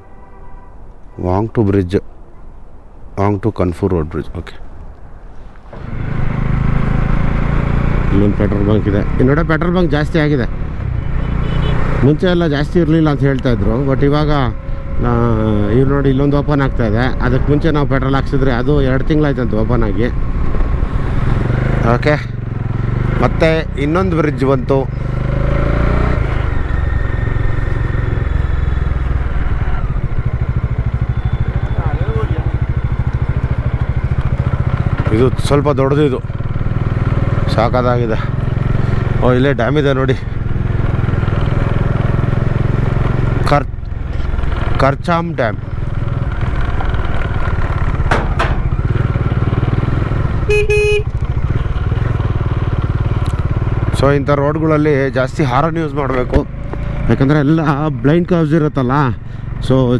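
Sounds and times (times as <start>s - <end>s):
horn honks: 0.0s - 1.4s, 11.0s - 12.1s, 29.8s - 34.0s, 50.3s - 51.4s
motorcycle engine running: 19.6s - 59.9s.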